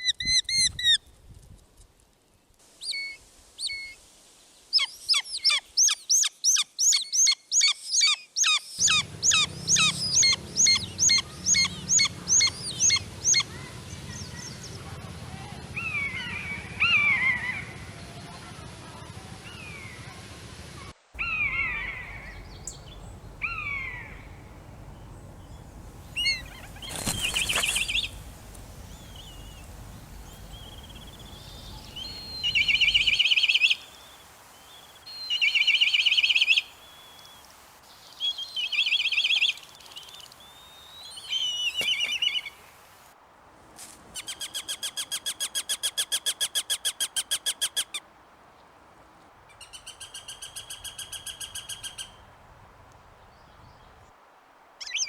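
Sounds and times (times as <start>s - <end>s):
birds calling: 8.4s - 13.7s, 21.2s - 37.5s
fast trilled birdsong: 8.8s - 13.5s, 21.2s - 37.4s
rapid rattle-like bird notes: 21.2s - 33.2s.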